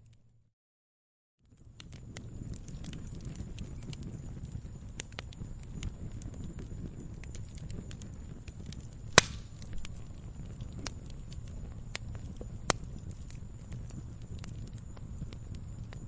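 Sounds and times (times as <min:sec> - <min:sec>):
wood fire crackling: 0:01.4 - 0:16.0
sharp loud fire pops: 0:09.1 - 0:09.9.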